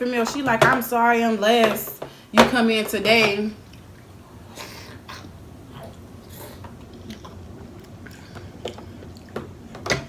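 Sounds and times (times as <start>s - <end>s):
person chewing: 4.5s - 9.5s.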